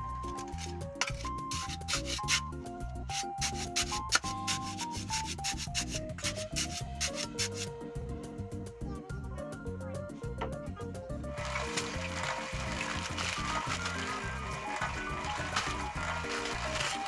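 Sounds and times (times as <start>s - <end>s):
background music melody: 0.0s - 17.0s
scratchy percussion strokes: 3.1s - 7.7s.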